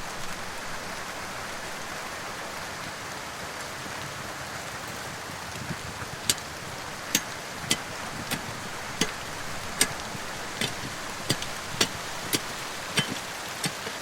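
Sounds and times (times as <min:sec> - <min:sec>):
steady hiss: 0:00.0 - 0:14.0
sharp irregular clicks: 0:06.2 - 0:13.9.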